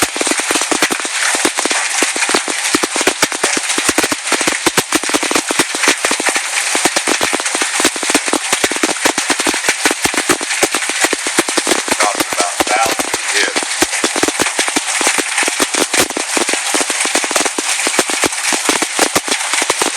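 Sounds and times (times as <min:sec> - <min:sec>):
hailstones clattering: 0:00.0 - 0:19.9.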